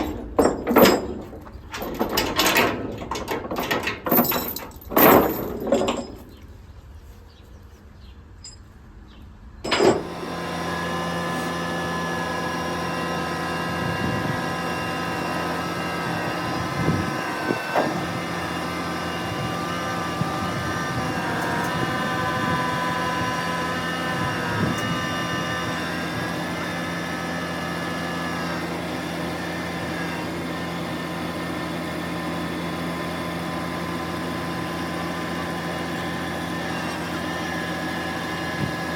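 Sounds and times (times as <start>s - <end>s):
engine starting and idling: 0.0s - 6.5s, 9.6s - 31.1s.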